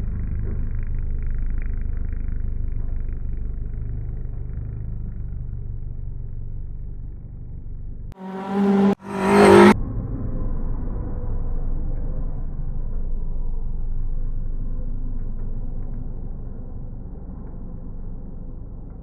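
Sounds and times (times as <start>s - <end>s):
muffled engine rumble: 0.0s - 8.2s, 8.9s - 19.0s
loud engine bursts: 8.2s - 9.8s.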